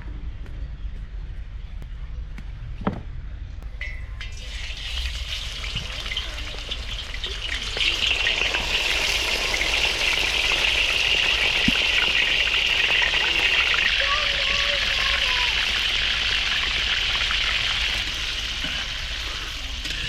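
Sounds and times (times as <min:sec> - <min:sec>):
food sizzling in hot oil: 0:04.2 - 0:20.0.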